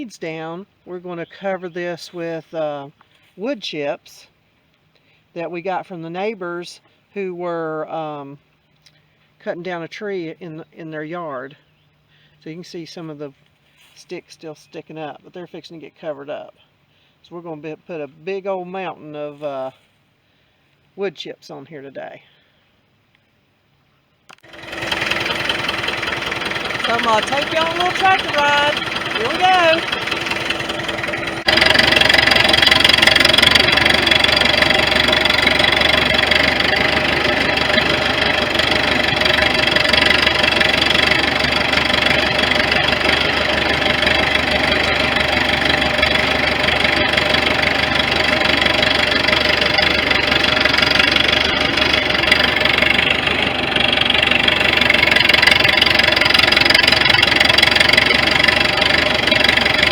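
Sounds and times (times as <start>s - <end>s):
tractor diesel engine running: 24.3s - 59.9s.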